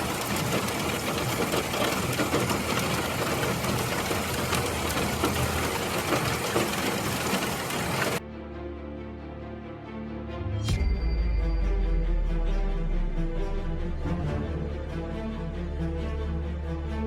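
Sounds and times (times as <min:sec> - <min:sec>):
hail pelting a hard surface: 0:00.0 - 0:08.2.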